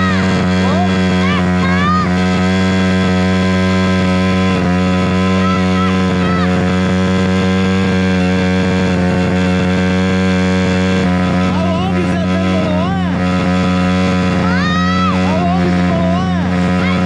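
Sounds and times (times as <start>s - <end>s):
small motorbike engine revving high: 0.0s - 17.0s.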